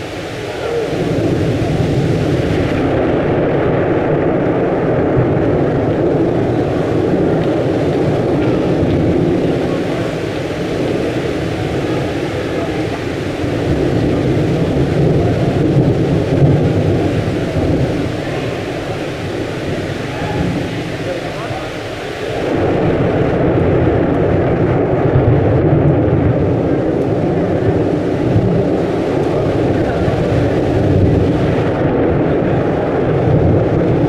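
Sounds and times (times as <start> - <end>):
thunder rumbling: 0.0 - 34.0.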